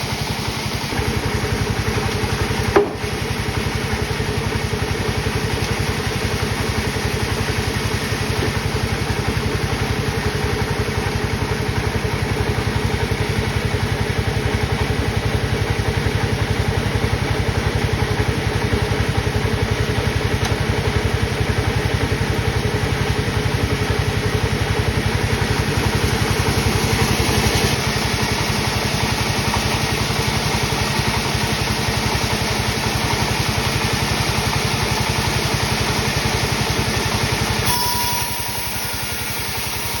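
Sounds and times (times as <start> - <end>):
sawmill machinery running: 0.0 - 40.0.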